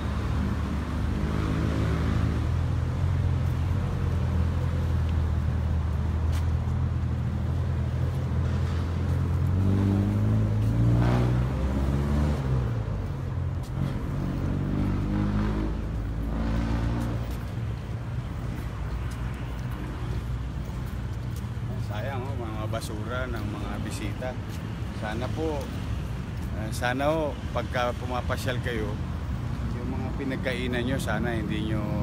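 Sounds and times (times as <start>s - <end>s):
vehicle engine revving: 0.0s - 2.7s, 8.4s - 12.9s, 13.7s - 17.4s.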